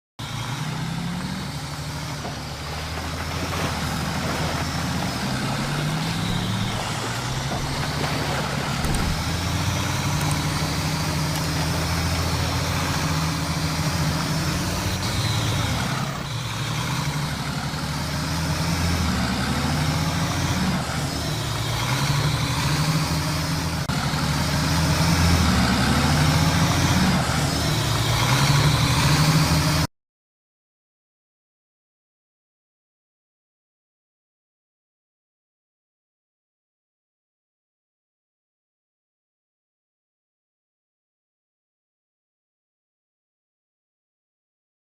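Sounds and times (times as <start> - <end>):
heavy truck engine running: 0.2 - 29.9.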